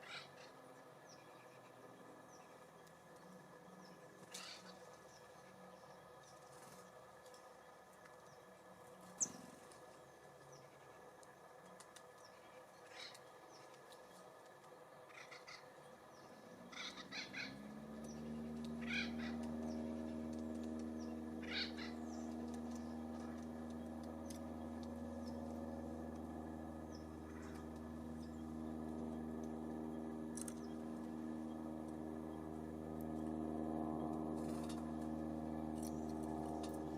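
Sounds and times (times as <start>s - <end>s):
harsh bird calls: 0.0s - 2.6s, 3.7s - 5.9s, 12.2s - 13.8s, 15.0s - 32.9s
low mechanical hum: 0.0s - 36.9s.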